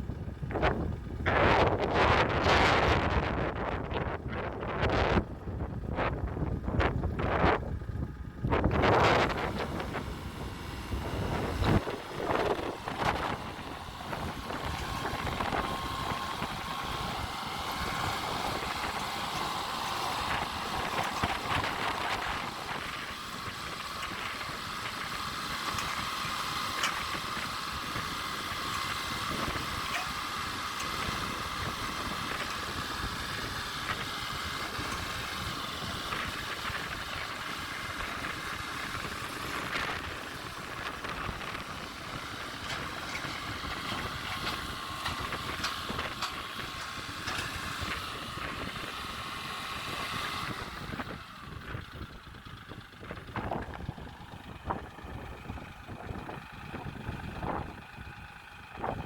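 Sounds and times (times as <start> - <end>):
faint steady whine: 0.0 - 59.0
tractor engine running: 0.0 - 59.0.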